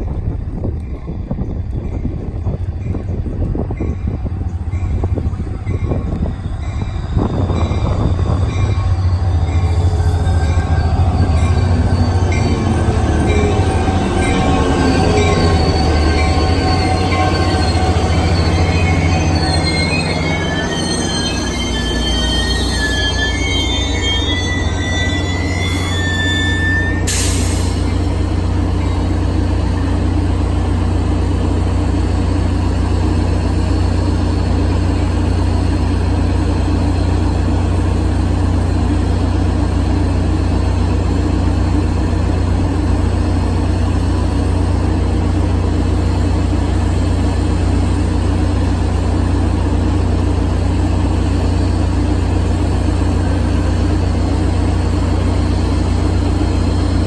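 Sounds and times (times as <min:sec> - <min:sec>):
locomotive engine drone: 0:00.0 - 0:57.0
train wheels squealing: 0:00.7 - 0:30.1.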